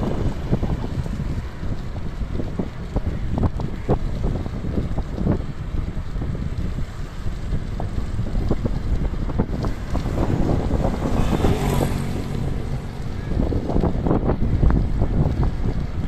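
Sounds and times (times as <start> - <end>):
road rumble: 0.0 - 16.0
wind buffeting microphone: 0.0 - 16.0.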